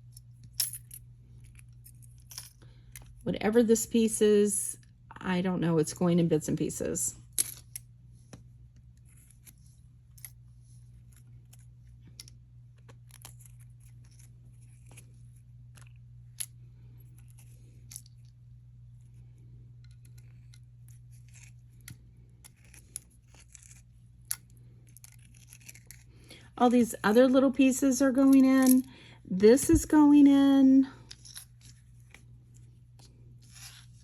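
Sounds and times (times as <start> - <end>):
steady low hum: 0.0 - 34.0
jewelry pieces clicking and clinking: 0.1 - 3.2, 28.2 - 28.9, 31.0 - 31.8.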